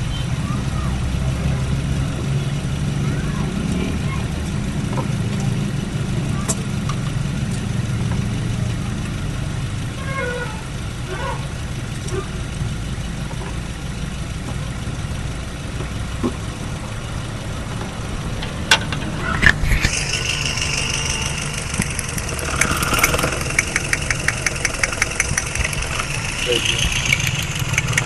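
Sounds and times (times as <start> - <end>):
petrol engine idling: 0.0 - 28.0
high whine: 18.0 - 28.0
rapid ticks: 19.4 - 28.0.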